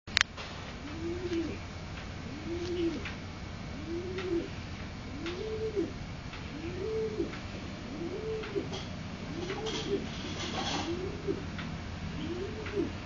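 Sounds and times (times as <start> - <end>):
low cooing calls: 0.8 - 13.0.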